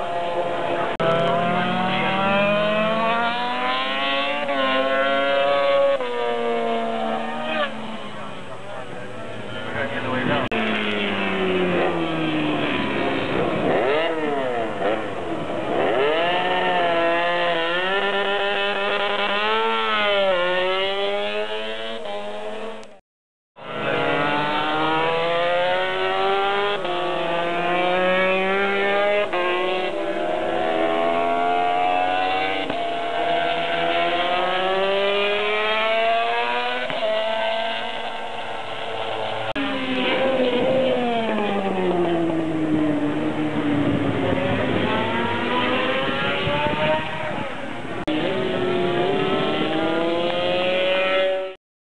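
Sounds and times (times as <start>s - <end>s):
racing motorcycles revving: 0.0s - 23.0s, 23.6s - 51.6s.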